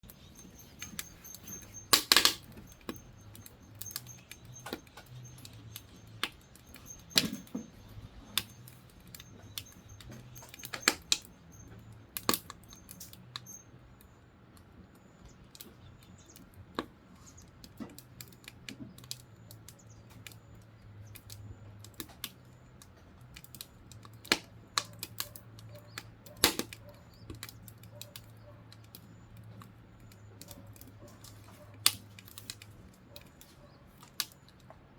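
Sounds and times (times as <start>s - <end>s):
firewood crackling in a stove: 0.0s - 34.9s.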